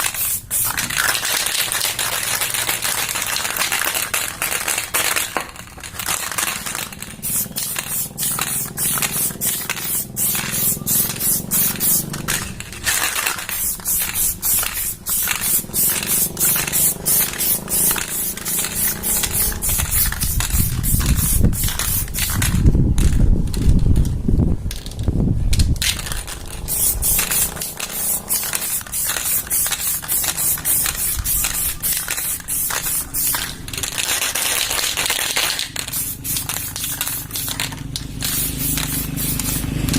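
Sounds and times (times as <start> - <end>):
spray can hissing: 0.0 - 22.6, 25.8 - 39.9.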